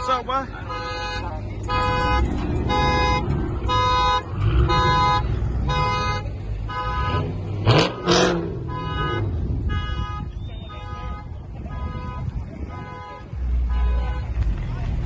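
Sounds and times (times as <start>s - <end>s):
idling engines rumble: 0.0s - 15.0s
car alarm horn pulses: 0.6s - 14.3s.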